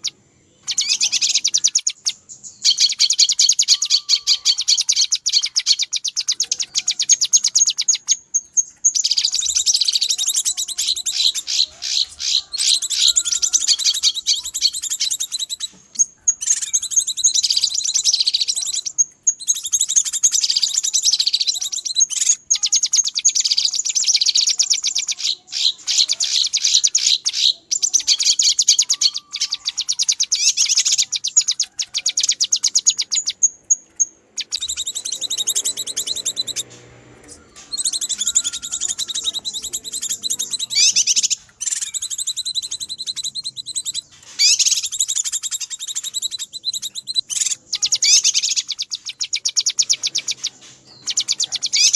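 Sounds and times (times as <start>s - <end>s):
bird chattering in rapid trills: 0.0s - 51.9s.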